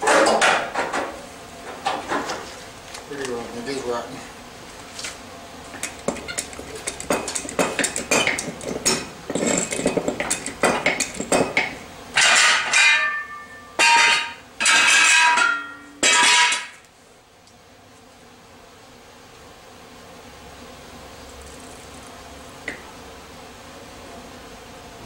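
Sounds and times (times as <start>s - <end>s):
metal clinking and knocking: 5.8s - 16.8s.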